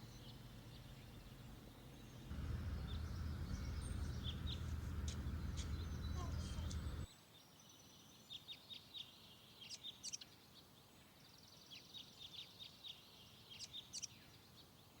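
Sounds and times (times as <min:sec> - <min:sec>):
small bird chirping: 0:00.0 - 0:07.1
faint hiss: 0:02.3 - 0:07.0.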